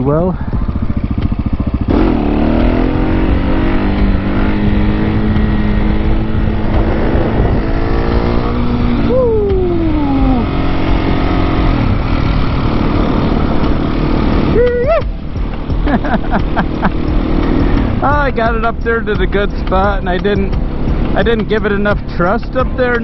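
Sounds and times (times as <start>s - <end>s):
wind rumble on microphone: 0.0s - 15.8s
motorcycle engine revving: 0.0s - 23.0s.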